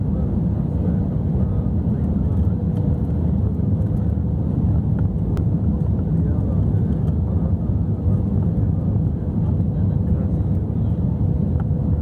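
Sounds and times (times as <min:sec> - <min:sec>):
airliner engines rumbling in cabin: 0:00.0 - 0:12.0.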